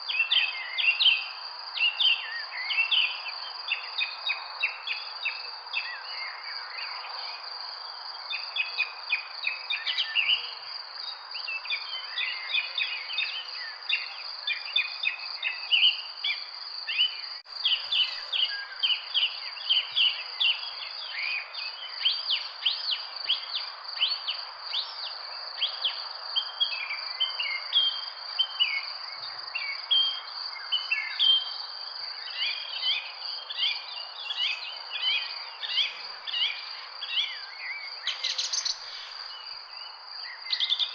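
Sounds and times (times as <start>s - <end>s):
small birds chirping: 8.3s - 40.9s
high insect drone: 17.5s - 26.1s.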